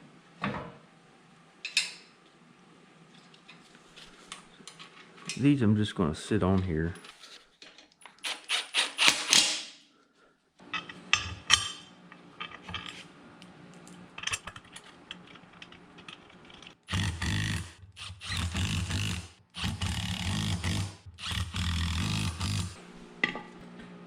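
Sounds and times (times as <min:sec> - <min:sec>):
parts clicking and scraping: 0:03.2 - 0:05.4, 0:10.6 - 0:23.4
power tool driving bolts: 0:08.2 - 0:09.7, 0:16.8 - 0:22.8.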